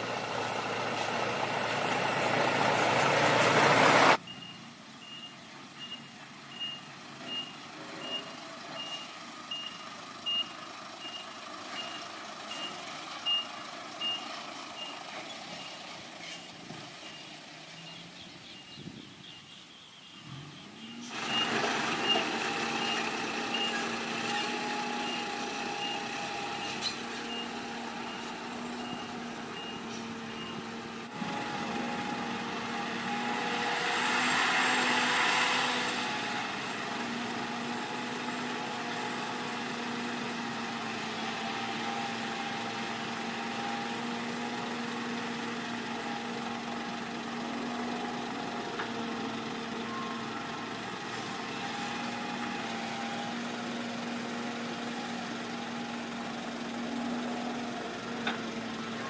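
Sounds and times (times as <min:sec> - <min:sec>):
heavy diesel engine running: 0:00.0 - 0:04.3, 0:07.3 - 0:17.5, 0:21.1 - 0:59.0
reversing alarm beeping: 0:04.2 - 0:15.0.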